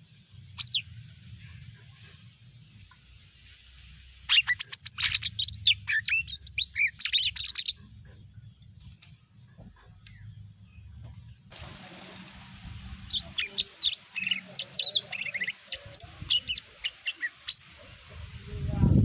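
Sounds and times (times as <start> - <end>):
bird singing whistled notes: 0.6 - 0.9, 4.3 - 7.8, 13.0 - 17.7.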